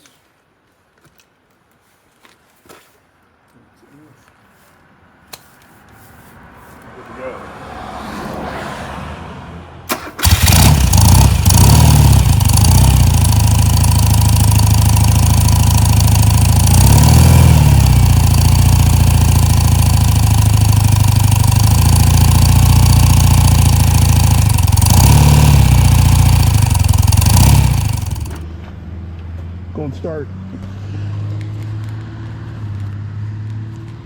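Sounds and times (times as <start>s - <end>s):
engine throttle revs: 9.9s - 28.4s
motorcycle engine fast idle: 9.9s - 28.4s
starter motor cranking: 9.9s - 28.4s.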